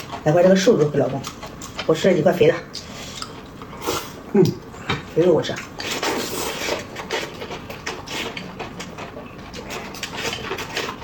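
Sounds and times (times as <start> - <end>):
wet chewing: 0.0 - 11.0.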